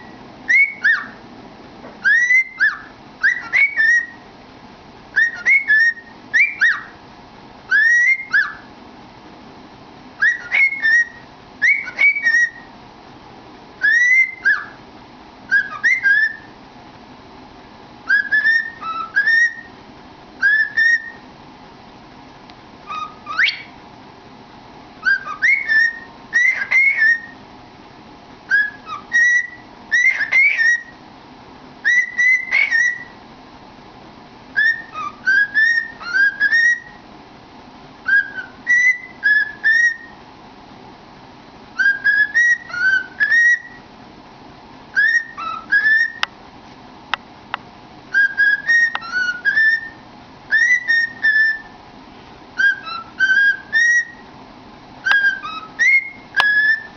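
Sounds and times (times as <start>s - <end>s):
cockatiel whistling: 0.0s - 1.2s, 2.0s - 4.2s, 5.1s - 7.0s, 7.7s - 8.7s, 10.2s - 12.7s, 13.8s - 14.8s, 15.5s - 16.5s, 18.0s - 19.8s, 20.4s - 21.2s, 22.8s - 23.8s, 25.0s - 27.4s, 28.5s - 31.0s, 31.8s - 33.2s, 34.6s - 37.0s, 38.0s - 40.2s, 41.8s - 43.9s, 44.9s - 46.3s, 48.1s - 51.8s, 52.6s - 54.2s, 55.0s - 56.9s.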